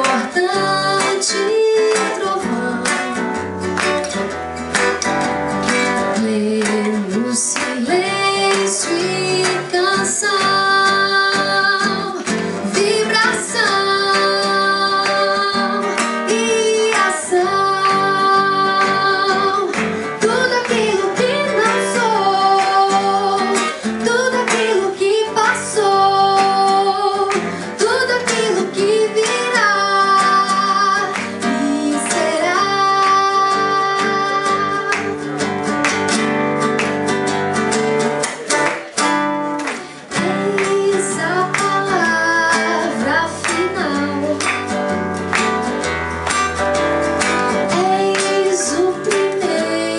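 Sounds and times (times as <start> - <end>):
woman singing: 0.0 - 3.8, 5.9 - 35.5, 40.0 - 44.8, 47.5 - 49.9
acoustic guitar: 0.0 - 49.9.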